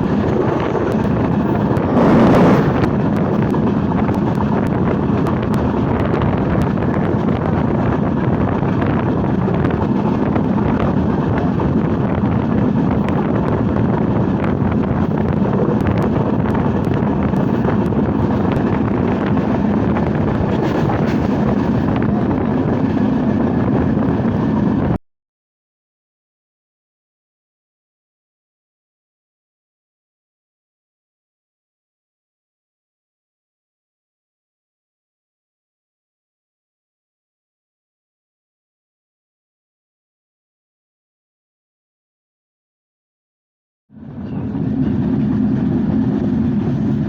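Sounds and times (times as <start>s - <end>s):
moving train rumble: 0.0s - 25.0s, 44.0s - 47.0s
wind buffeting microphone: 0.0s - 25.0s.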